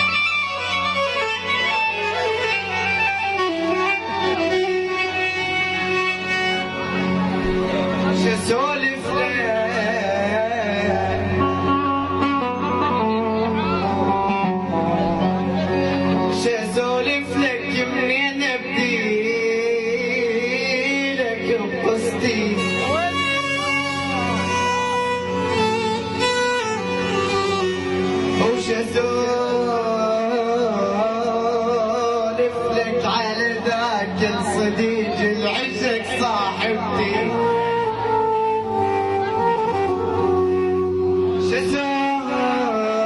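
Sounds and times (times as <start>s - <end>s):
instrumental backing: 0.0s - 43.0s
plucked strings: 0.1s - 10.0s
man singing ornamented melody: 8.0s - 12.7s, 16.2s - 24.6s, 28.0s - 38.2s, 41.2s - 43.0s.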